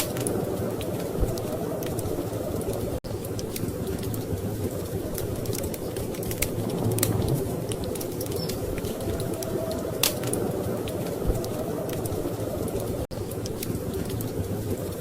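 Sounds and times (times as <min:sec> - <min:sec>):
storm wind rumble: 0:00.0 - 0:15.0
wood fire crackling: 0:00.0 - 0:15.0.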